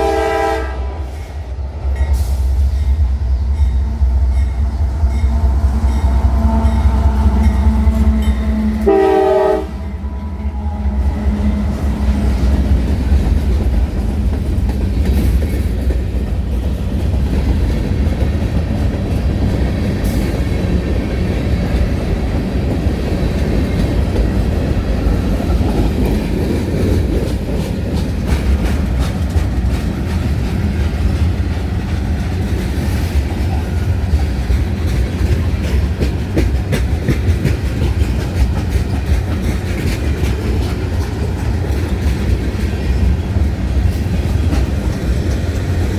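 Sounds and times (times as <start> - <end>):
train rumbling past: 0.0 - 45.9
wheels clicking over rail joints: 12.2 - 45.9.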